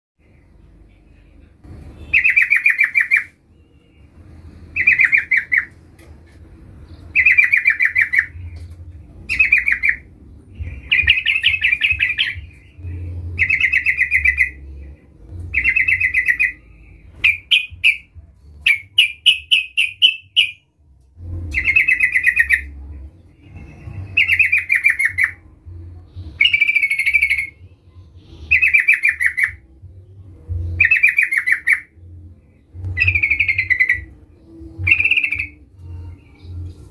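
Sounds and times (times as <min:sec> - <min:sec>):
bulbul singing bubbly chattering phrases: 0:09.2 - 0:20.6, 0:32.9 - 0:36.7.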